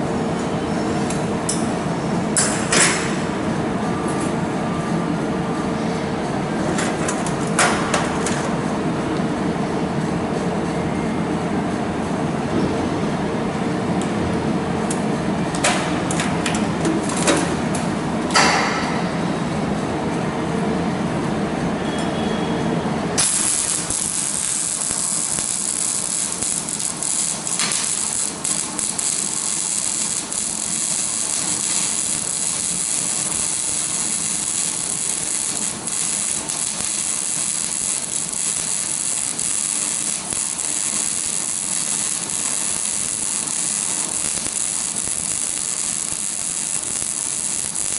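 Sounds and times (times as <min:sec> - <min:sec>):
low machine hum: 0:00.0 - 0:47.9
welding arc hissing and crackling: 0:23.2 - 0:47.9.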